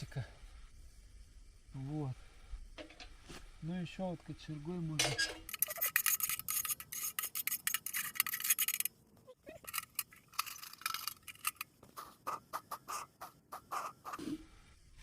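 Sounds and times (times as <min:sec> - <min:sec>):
metal poker scraping in stove: 0:05.0 - 0:08.9.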